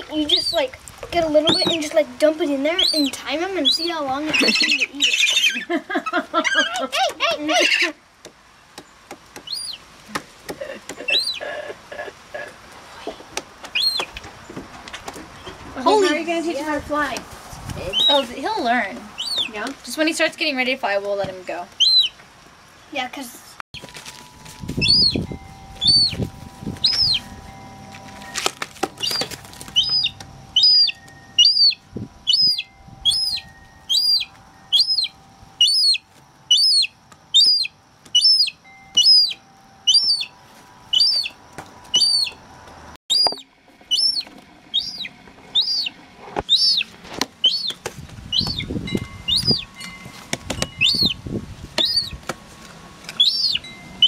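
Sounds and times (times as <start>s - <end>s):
gull chick peeping: 0.2s - 0.8s, 1.4s - 2.0s, 2.7s - 7.9s, 9.4s - 12.5s, 13.6s - 14.2s, 17.8s - 18.3s, 19.1s - 19.7s, 21.7s - 22.2s, 24.7s - 27.4s, 28.9s - 42.4s, 43.1s - 49.8s, 50.6s - 51.2s, 51.8s - 52.2s, 53.1s - 53.7s.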